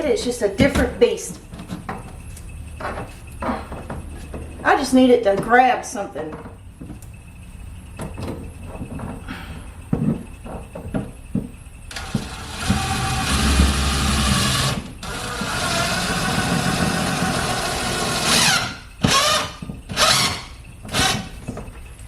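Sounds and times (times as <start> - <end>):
power drill driving screw: 11.9 - 21.3.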